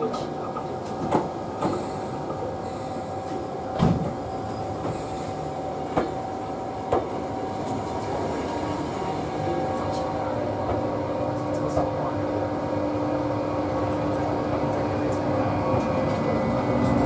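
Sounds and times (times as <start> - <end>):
train wheels knocking on rail joints: 5.8 - 6.2.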